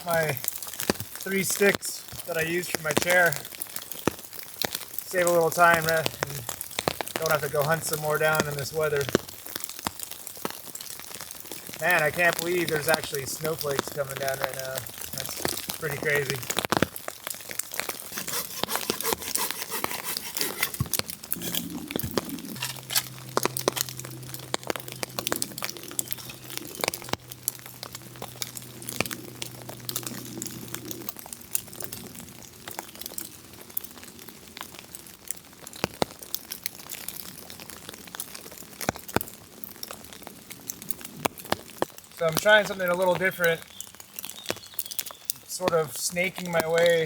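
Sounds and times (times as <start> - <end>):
rustling handling noise: 17.7 - 27.2.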